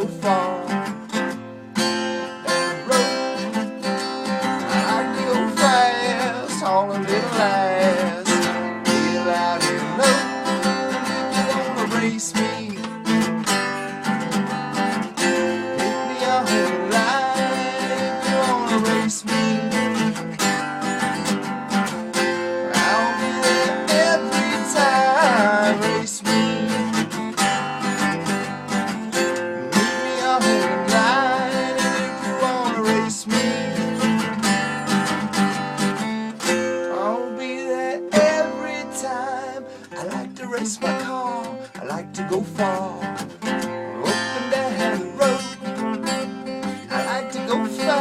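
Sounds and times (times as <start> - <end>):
strummed acoustic guitar chords: 0.0 - 48.0
sliding melody line: 1.8 - 12.8, 13.6 - 34.1.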